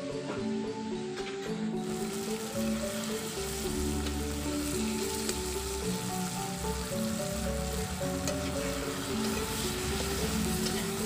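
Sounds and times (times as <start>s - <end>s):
background music with held notes: 0.0s - 11.0s
food sizzling in a wok: 1.8s - 11.0s.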